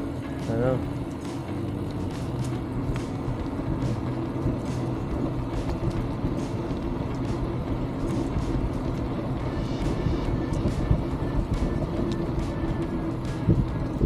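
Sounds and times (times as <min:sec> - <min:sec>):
bicycle tyres rolling on trail: 0:00.0 - 0:14.0
wind rumble on microphone: 0:00.9 - 0:14.0.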